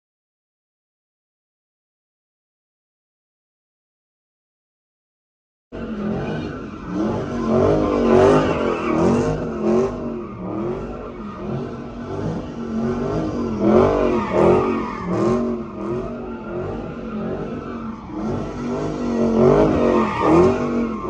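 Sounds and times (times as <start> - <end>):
car engine revving hard: 5.8 - 21.0.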